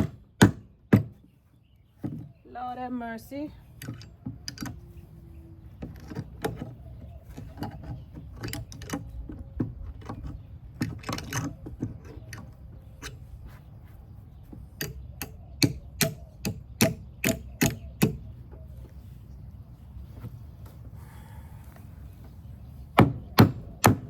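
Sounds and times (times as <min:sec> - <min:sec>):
hammer striking nail into wood: 0:00.0 - 0:01.2, 0:15.6 - 0:18.2, 0:23.0 - 0:24.0.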